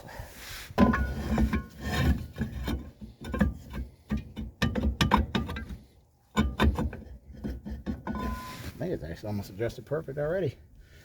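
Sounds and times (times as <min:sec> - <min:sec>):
metal clunks and scraping: 0:00.7 - 0:08.8.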